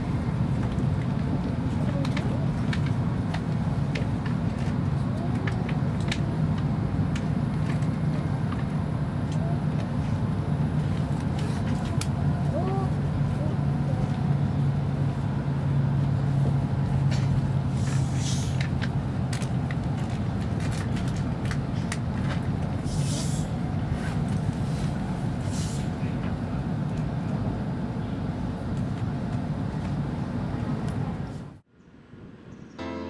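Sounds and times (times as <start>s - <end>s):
train running rumble: 0.0s - 31.6s
short hisses and clicks: 17.8s - 18.6s.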